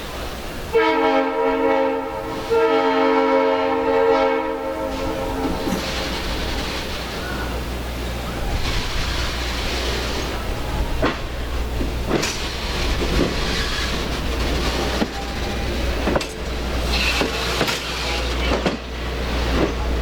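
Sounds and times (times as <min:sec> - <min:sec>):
train rumbling on rails: 0:00.0 - 0:20.0
wheels clicking over rail joints: 0:08.5 - 0:20.0.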